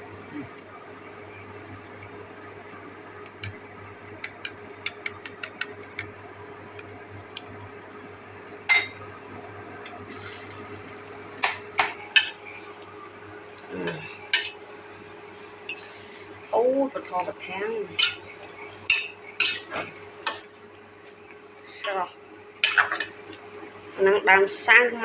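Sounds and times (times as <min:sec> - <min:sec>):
utensils clinking against dishes: 0:18.9 - 0:20.4.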